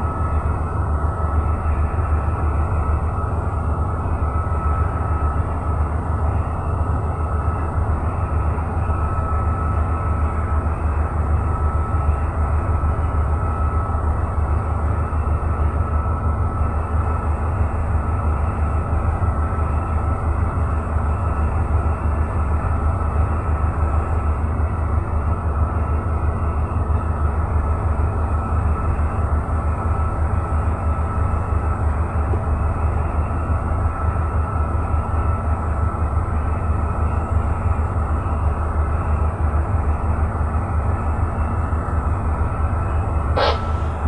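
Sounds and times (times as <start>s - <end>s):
diesel engine rumbling: 43.0s - 44.0s.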